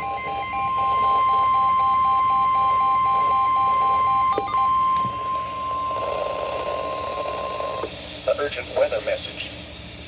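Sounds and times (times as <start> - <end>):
rapid beeping: 0.0 - 7.9
steady alarm tone: 0.0 - 7.9.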